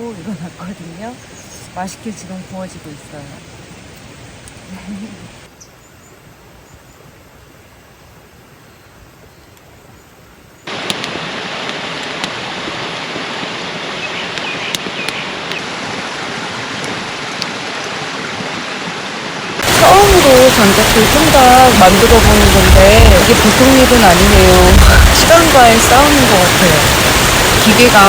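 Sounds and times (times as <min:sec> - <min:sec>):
sharp crackles: 0:10.7 - 0:12.6
mountain stream rushing: 0:10.7 - 0:28.0.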